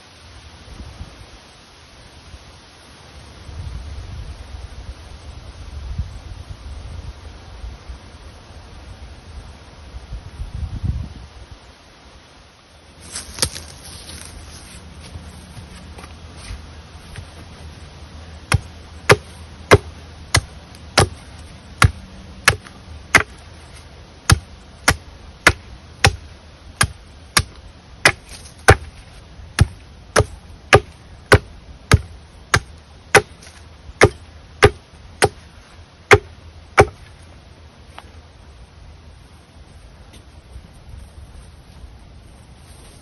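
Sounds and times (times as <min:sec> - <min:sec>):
wood being chopped: 0:13.1 - 0:13.7, 0:18.5 - 0:21.2, 0:21.8 - 0:23.4, 0:24.3 - 0:35.4, 0:36.1 - 0:37.1.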